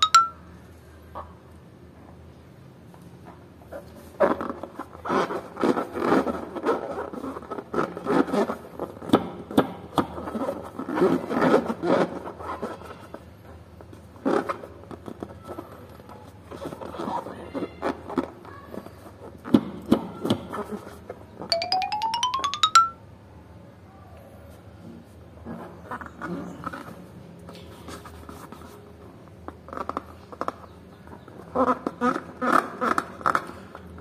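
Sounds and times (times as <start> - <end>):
rubbing a latex balloon: 4.1 - 9.0, 10.2 - 13.3.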